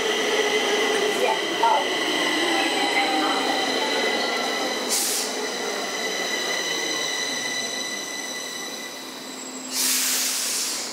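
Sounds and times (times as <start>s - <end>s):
train high-pitched whine: 0.0s - 10.9s
air hiss: 4.9s - 5.4s, 9.7s - 10.9s.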